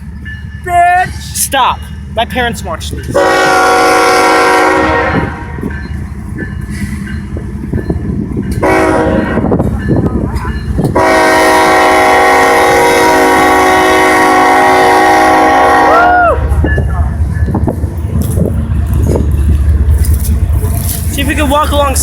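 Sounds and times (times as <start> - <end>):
train rumble and clatter: 0.0 - 22.0
locomotive air horn: 3.2 - 5.6, 8.6 - 9.5, 11.0 - 16.3.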